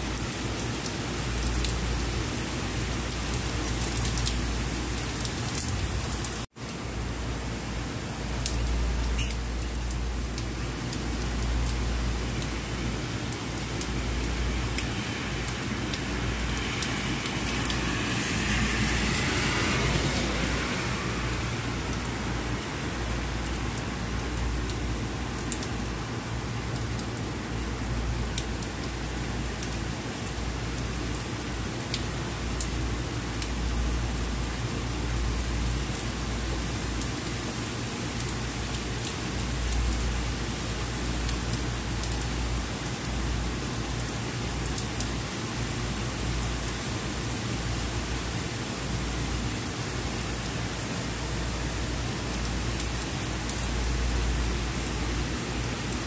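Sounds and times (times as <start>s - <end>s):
rain on wet street: 0.0s - 56.0s
vehicle passing on wet road: 0.2s - 27.9s.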